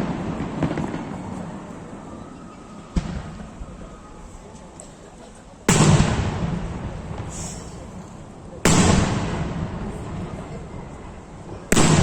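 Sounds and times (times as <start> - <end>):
firework shells bursting with echo: 5.7 - 10.2, 11.7 - 12.0.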